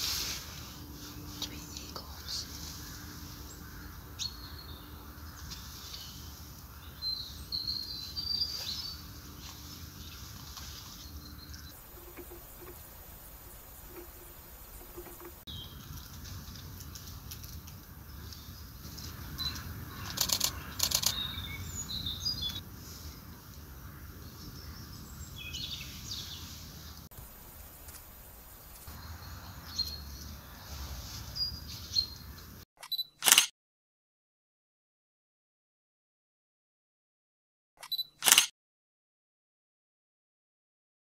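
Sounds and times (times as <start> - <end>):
outdoor hush: 0.0 - 15.7, 16.9 - 24.2, 25.9 - 32.6
birds chirping: 1.4 - 15.8, 18.1 - 30.6
fast runs of clicks: 11.8 - 15.4, 27.2 - 29.0.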